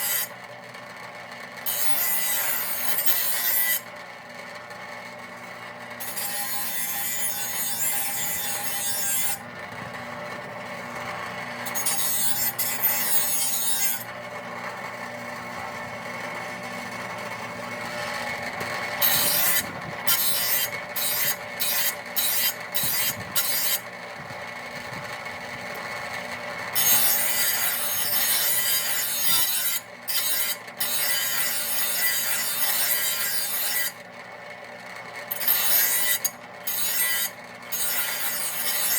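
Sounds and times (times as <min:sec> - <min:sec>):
mower blade being sharpened: 0:00.0 - 0:00.4, 0:01.6 - 0:03.9, 0:06.0 - 0:09.4, 0:11.6 - 0:14.1, 0:19.0 - 0:23.9, 0:26.7 - 0:34.0, 0:35.3 - 0:38.9.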